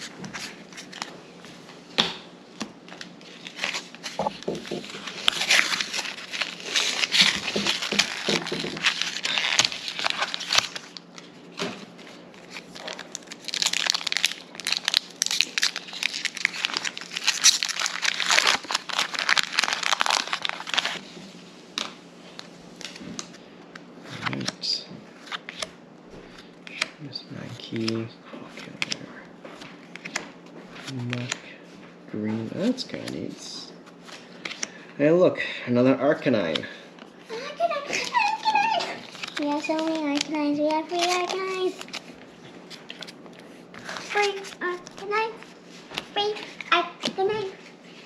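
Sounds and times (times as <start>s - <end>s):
plastic foil wrapper crinkling: 4.8s - 11.3s, 12.4s - 21.0s, 37.9s - 42.1s
wrapper tearing: 4.9s - 11.1s, 12.4s - 21.0s, 38.0s - 42.1s.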